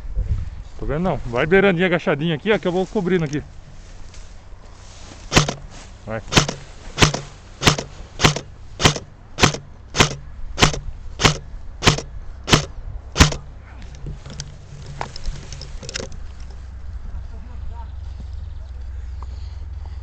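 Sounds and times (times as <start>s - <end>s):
airsoft gun single shots: 5.3s - 5.6s, 6.3s - 13.5s.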